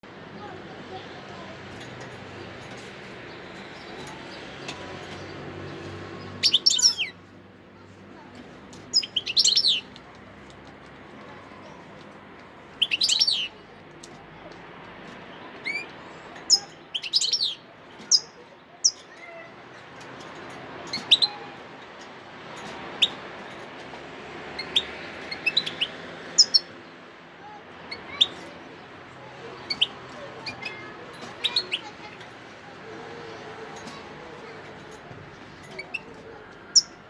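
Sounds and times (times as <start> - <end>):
finch twittering and chirping: 1.7 - 7.3, 8.4 - 10.6, 12.7 - 14.2, 15.1 - 23.6, 24.4 - 26.8, 27.8 - 37.0.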